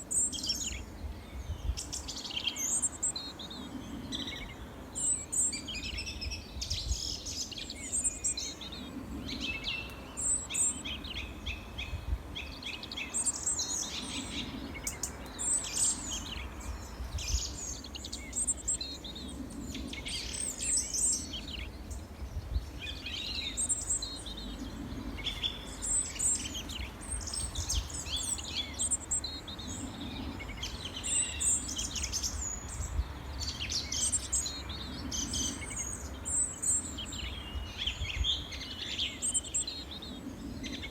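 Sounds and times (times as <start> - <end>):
songbirds chirping and trilling: 0.0 - 40.9.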